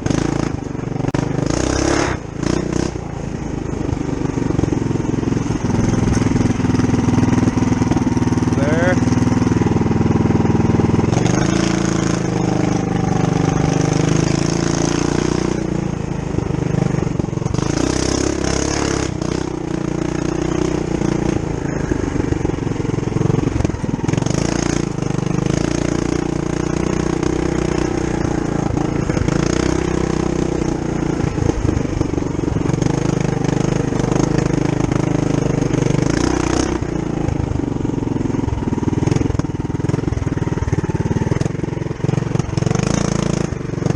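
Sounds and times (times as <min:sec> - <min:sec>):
small engine revving up and down: 0:01.2 - 0:03.0, 0:10.7 - 0:15.8, 0:17.4 - 0:22.4, 0:23.2 - 0:37.0, 0:42.4 - 0:43.9.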